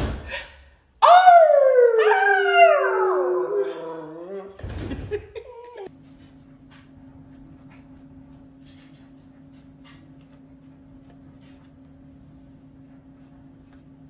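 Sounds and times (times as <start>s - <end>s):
low steady hum: 0.2s - 14.0s
howl: 1.0s - 4.6s.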